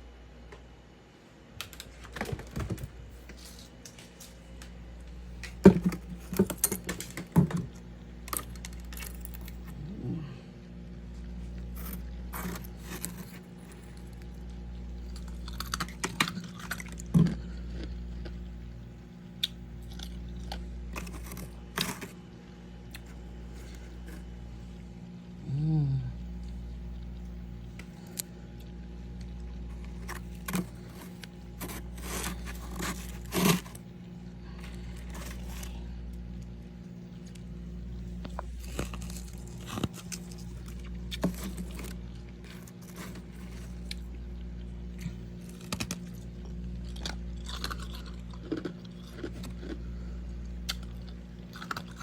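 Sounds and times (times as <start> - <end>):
steady low hum: 0.0 - 52.0
frost crunching and crackling: 1.6 - 25.4, 26.2 - 52.0.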